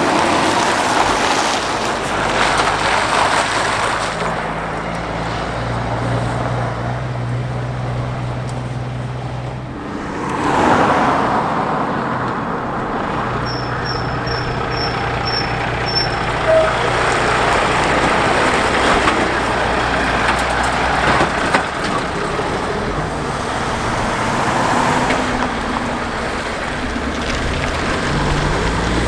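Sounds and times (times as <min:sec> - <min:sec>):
truck diesel engine running: 0:00.0 - 0:29.0
brief louder tone: 0:13.4 - 0:17.0
short high pips: 0:13.4 - 0:17.8.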